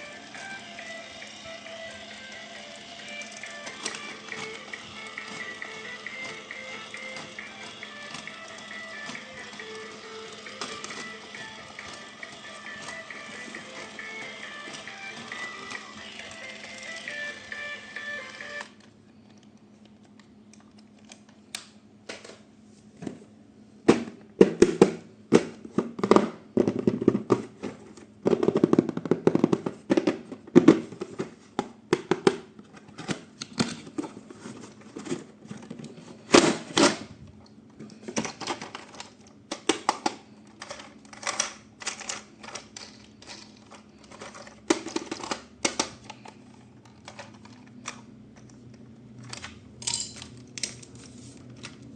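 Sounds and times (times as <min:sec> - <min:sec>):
hands handling plastic toys: 0:37.8 - 0:51.9.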